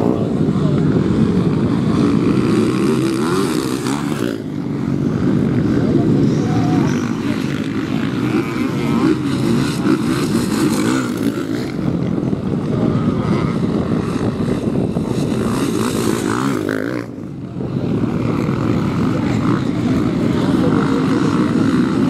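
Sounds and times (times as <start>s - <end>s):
motocross bikes revving: 0.0s - 22.0s.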